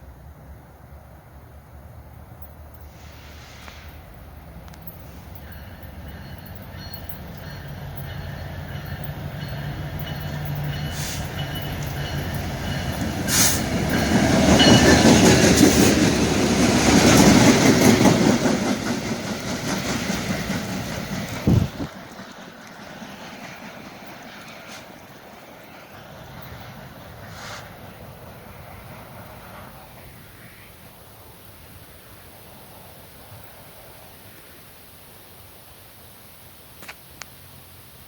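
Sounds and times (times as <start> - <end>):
train rumbling past: 0.0 - 35.1.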